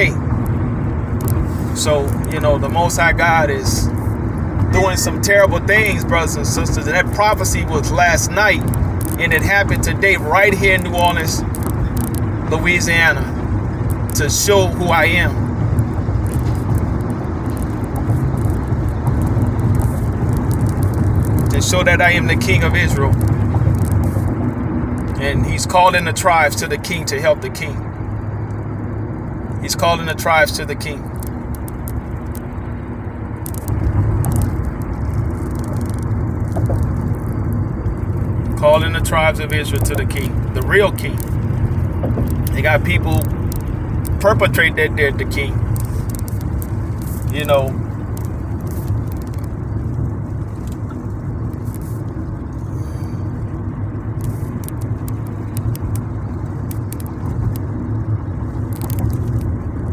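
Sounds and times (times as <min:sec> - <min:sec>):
road and engine noise: 0:00.0 - 0:59.9
faint clicks: 0:33.4 - 0:38.6, 0:39.7 - 0:44.2, 0:45.6 - 0:53.5, 0:54.2 - 0:59.9.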